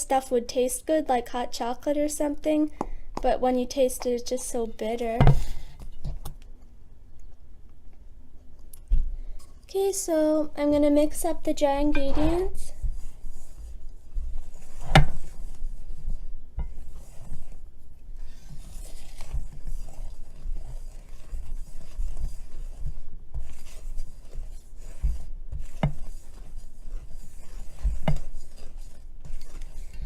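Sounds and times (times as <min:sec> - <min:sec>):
utensil scraping mixing bowl: 0:10.6 - 0:30.0.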